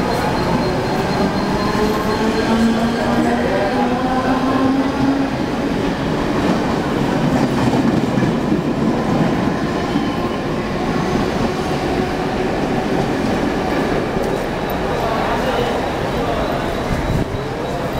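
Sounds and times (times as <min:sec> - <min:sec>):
steel wheels rumbling on rail: 0:00.0 - 0:17.9
clickety-clack of rail joints: 0:06.4 - 0:10.4.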